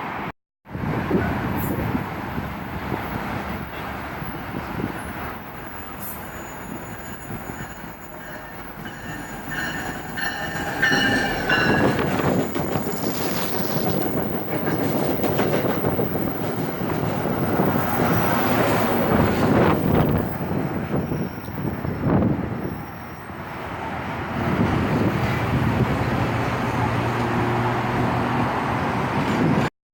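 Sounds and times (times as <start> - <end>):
train rumbling on rails: 0.0 - 29.7
high steady wheel squeal: 4.3 - 15.2.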